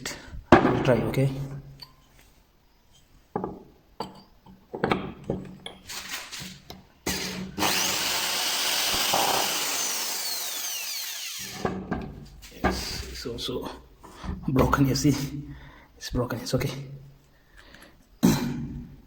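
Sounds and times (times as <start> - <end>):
power drill drilling metal: 7.1 - 11.8.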